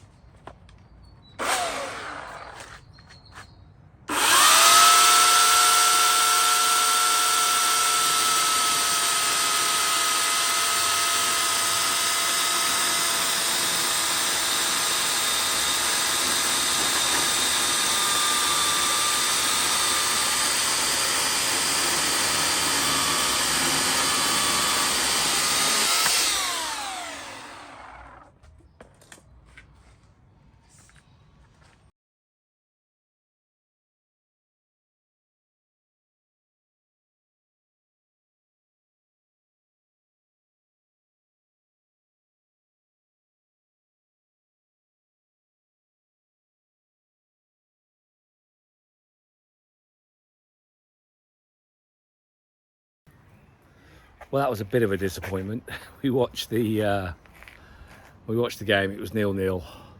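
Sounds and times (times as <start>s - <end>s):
electric chainsaw cutting wood: 1.4s - 2.8s, 4.1s - 28.4s.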